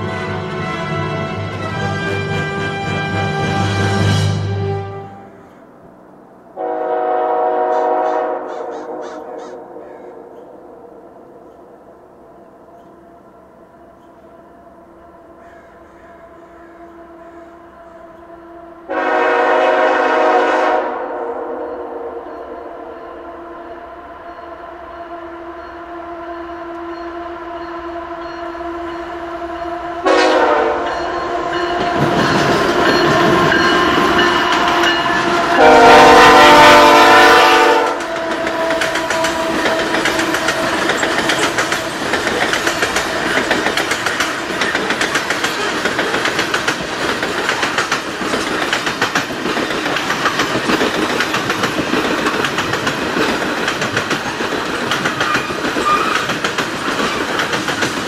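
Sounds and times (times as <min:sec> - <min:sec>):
multi-chime train air horn: 0:00.0 - 0:05.5, 0:06.6 - 0:09.4, 0:12.8 - 0:41.1
wheels clicking over rail joints: 0:37.9 - 0:58.0
freight cars wheels rumbling: 0:38.0 - 0:58.0.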